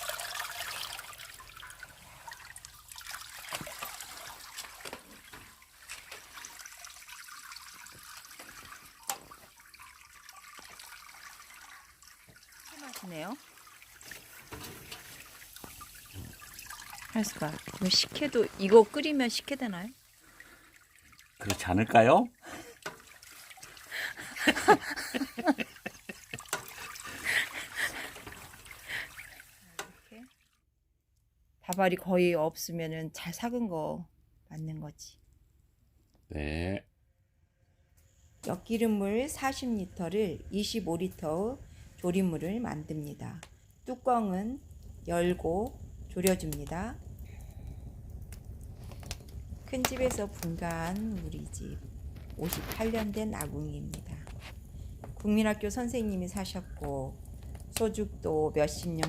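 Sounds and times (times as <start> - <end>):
water trickling into a container: 0.0 - 30.7, 38.4 - 59.0.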